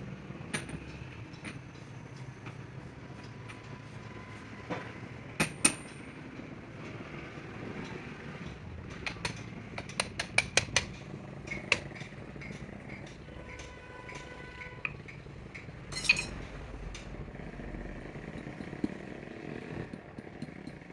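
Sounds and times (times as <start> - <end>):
tool striking metal: 15.9 - 16.4.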